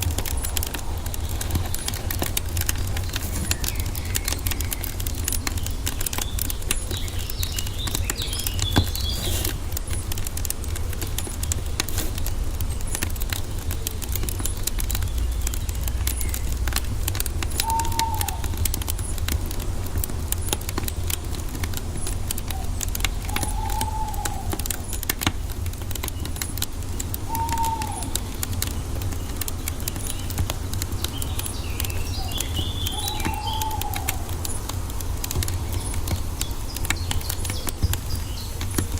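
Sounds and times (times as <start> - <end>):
birds twittering: 0.0 - 38.9
low fire rumble: 0.0 - 38.9
wood fire crackling: 0.0 - 38.9.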